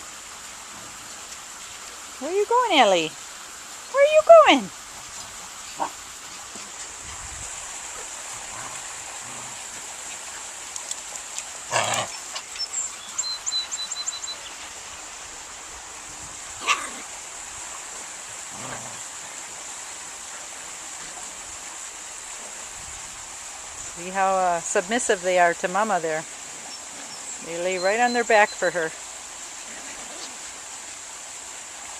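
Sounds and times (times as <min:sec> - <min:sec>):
puppies and dog barking: 0:05.6 - 0:07.2, 0:11.7 - 0:12.4, 0:16.6 - 0:17.1.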